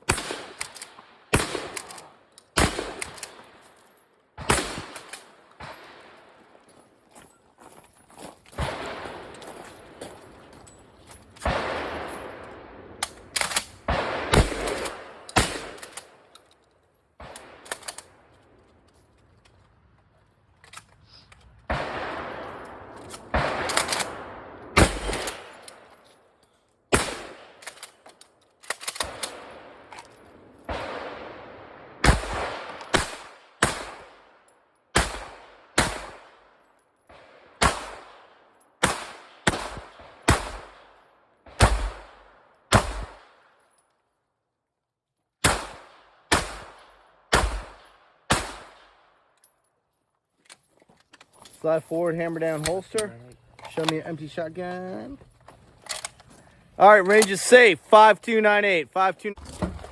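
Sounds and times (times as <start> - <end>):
gunshots echoing: 0.0 - 3.6, 4.4 - 6.2, 8.6 - 10.1, 11.4 - 16.3, 21.7 - 25.8, 26.9 - 27.6, 29.0 - 34.3, 35.0 - 36.4, 37.1 - 43.4, 45.4 - 49.1.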